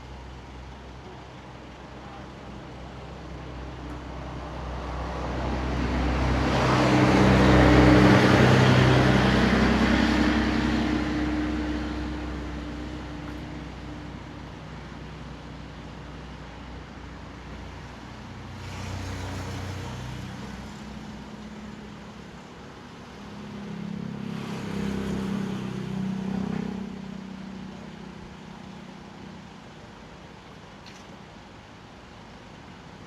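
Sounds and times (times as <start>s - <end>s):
steady low engine sound: 0.0s - 18.6s
vehicles passing: 0.0s - 32.9s.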